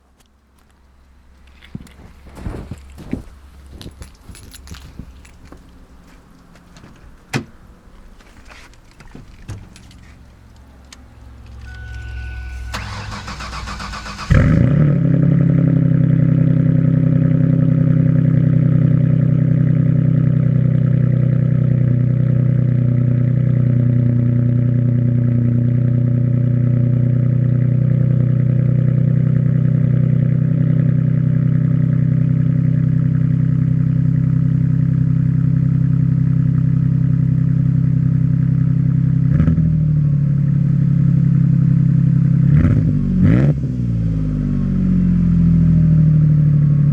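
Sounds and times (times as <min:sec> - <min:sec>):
loud car engine idling: 0:01.0 - 0:46.9
car starter cranking: 0:01.4 - 0:14.9.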